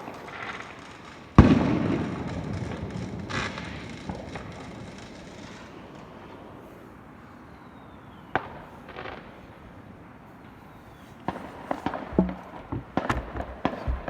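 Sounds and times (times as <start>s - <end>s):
firework cracking bangs: 0.0s - 6.3s, 11.2s - 14.0s
firework bang: 1.4s - 5.7s.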